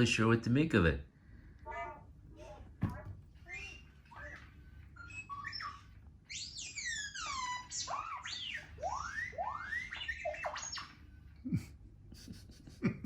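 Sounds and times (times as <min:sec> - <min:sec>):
toy robot beeping and whistling: 0:03.4 - 0:11.1.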